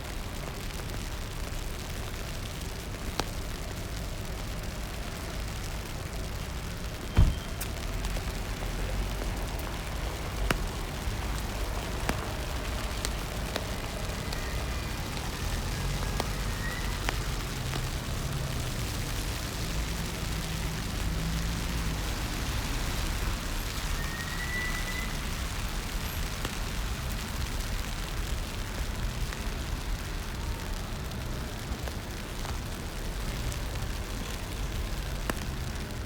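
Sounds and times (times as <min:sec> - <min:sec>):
rain falling on street: 0:00.0 - 0:36.0
traffic rumble: 0:00.0 - 0:36.0.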